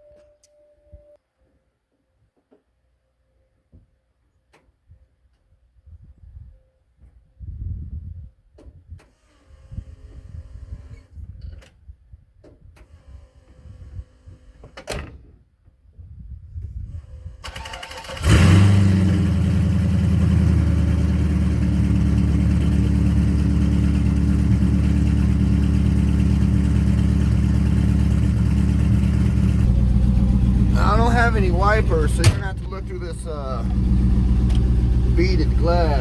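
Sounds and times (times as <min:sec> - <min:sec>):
vehicle engine starting and idling: 0:17.4 - 0:36.0.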